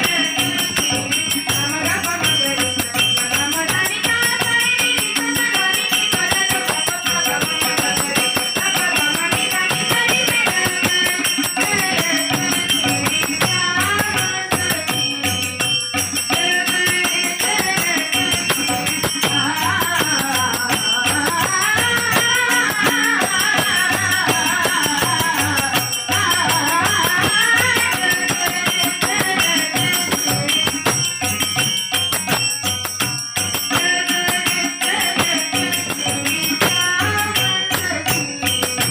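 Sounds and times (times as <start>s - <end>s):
rattling hand percussion: 0.0s - 38.9s
girls singing: 16.3s - 30.8s.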